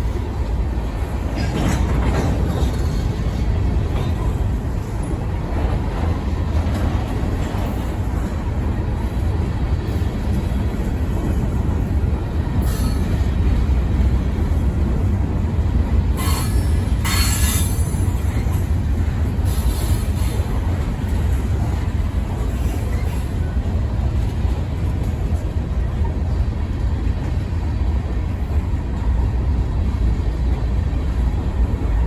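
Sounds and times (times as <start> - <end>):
freight train cars rumbling: 0.0 - 32.0
high-pitched wheel squeals: 16.2 - 18.1.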